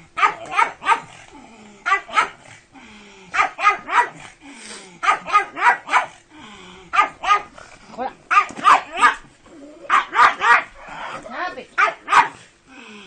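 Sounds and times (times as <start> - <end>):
dog barking: 0.2 - 1.2, 1.8 - 2.4, 3.3 - 4.2, 5.0 - 6.2, 6.9 - 7.5, 8.3 - 9.2, 9.9 - 10.8, 11.8 - 12.4.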